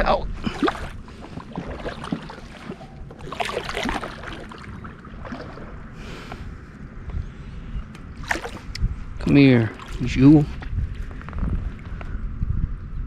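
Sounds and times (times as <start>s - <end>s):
steady low rumble: 0.0s - 13.0s
water knocking and splashing on hull: 0.4s - 5.8s.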